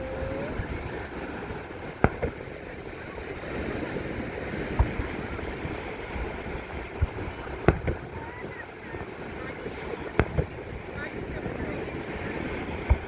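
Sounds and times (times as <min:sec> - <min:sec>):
fireworks exploding: 0:00.0 - 0:13.0
wind on microphone: 0:00.0 - 0:13.0.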